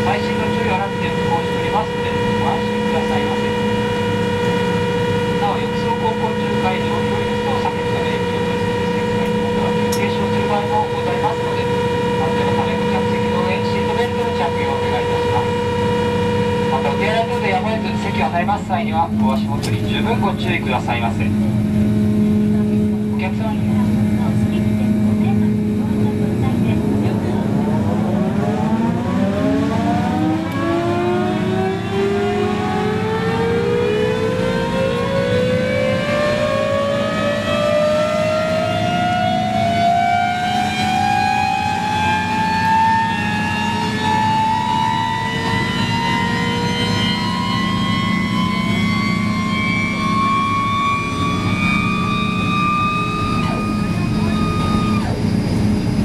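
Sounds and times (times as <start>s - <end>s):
steady low hum: 0.0s - 34.0s
gas turbine whine spooling up: 0.0s - 56.0s.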